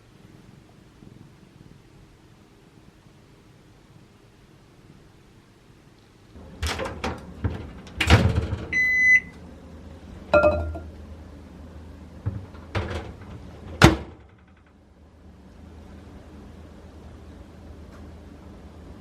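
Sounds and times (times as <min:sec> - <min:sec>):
appliance clicks and knocks: 0:06.4 - 0:08.8, 0:12.2 - 0:14.8
low hum: 0:08.9 - 0:12.6.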